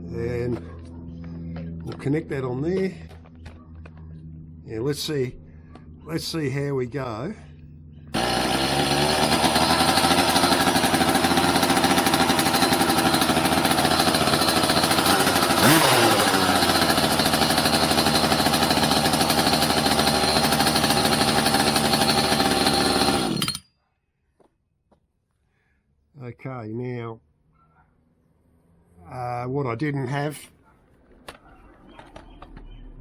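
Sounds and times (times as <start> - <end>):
drill cranking engine rapid pulsing: 8.2 - 23.6.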